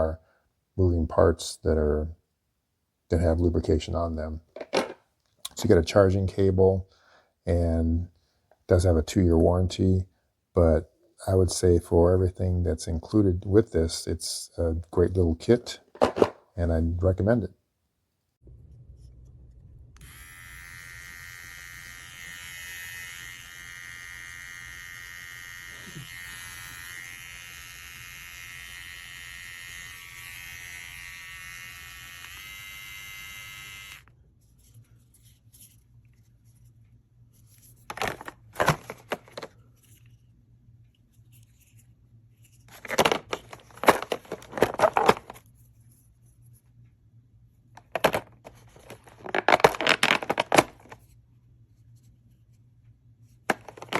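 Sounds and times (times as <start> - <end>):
grooming tool motor whine: 20.0 - 34.1
rustling crinkling noise: 34.4 - 46.9, 47.7 - 52.6.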